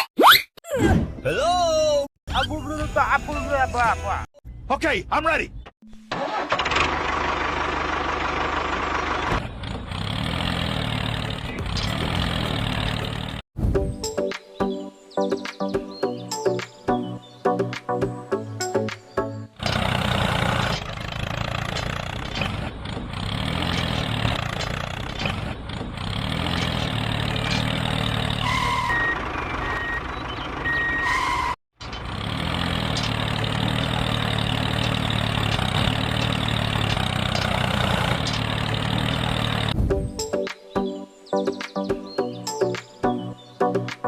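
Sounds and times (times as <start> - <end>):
vehicle engine humming: 5.9 - 13.4, 19.5 - 39.9
reversing beeps: 28.4 - 31.6.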